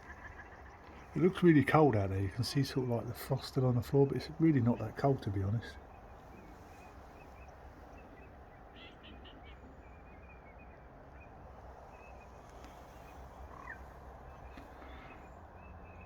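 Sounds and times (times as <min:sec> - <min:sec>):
faint bird chirps: 0:04.2 - 0:16.0.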